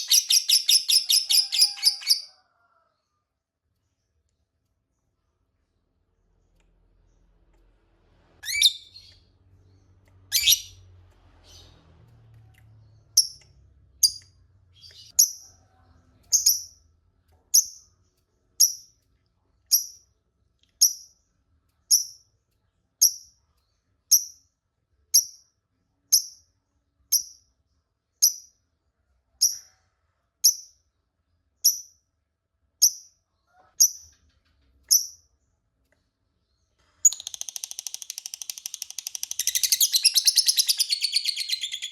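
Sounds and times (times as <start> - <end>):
lovebird high chirps: 0.0 - 2.3, 8.4 - 9.2, 10.3 - 10.8, 37.0 - 41.9.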